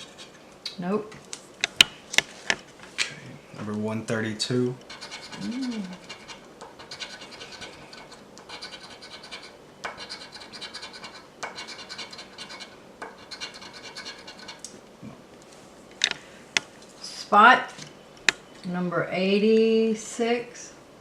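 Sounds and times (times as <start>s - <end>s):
lottery ticket scratching: 4.8s - 14.6s.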